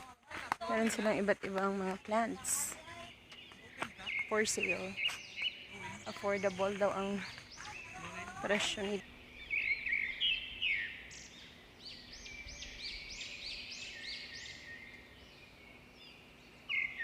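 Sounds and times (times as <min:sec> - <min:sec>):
bird singing: 0:00.7 - 0:17.0.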